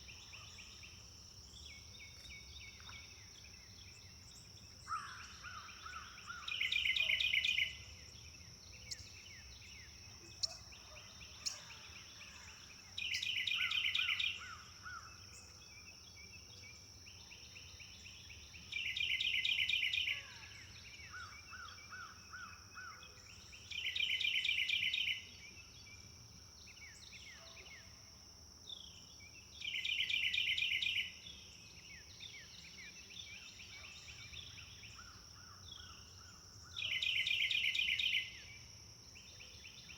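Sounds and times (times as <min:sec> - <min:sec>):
songbird trilling: 0:36.7 - 0:38.4.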